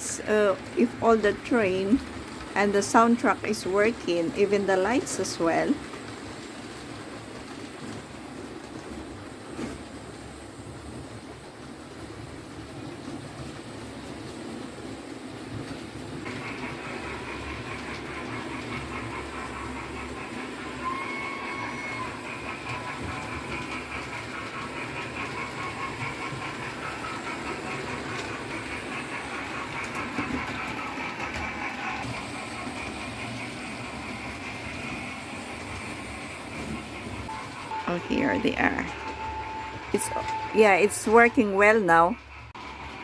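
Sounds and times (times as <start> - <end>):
model train whirring on track: 0.0 - 43.0
model train toot: 20.6 - 23.6.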